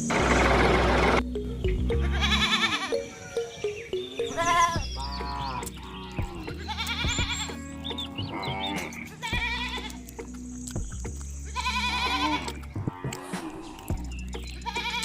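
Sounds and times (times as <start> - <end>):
background music with low beat: 0.7 - 15.0
animal bleating: 1.9 - 3.2, 4.2 - 10.1, 11.4 - 15.0.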